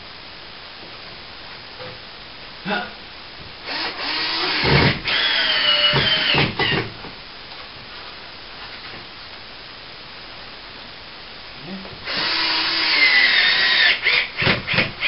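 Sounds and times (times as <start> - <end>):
cordless drill whining: 3.6 - 6.9, 12.0 - 15.0.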